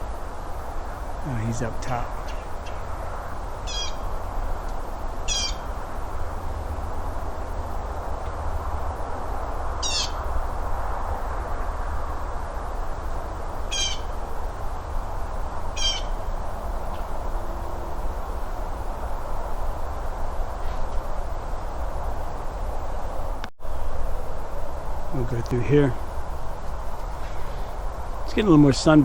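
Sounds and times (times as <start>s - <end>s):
steady background rush: 0.0s - 29.0s
woodpecker rattling call: 3.6s - 4.2s, 5.2s - 5.8s, 9.8s - 10.2s, 13.6s - 14.2s, 15.7s - 16.3s.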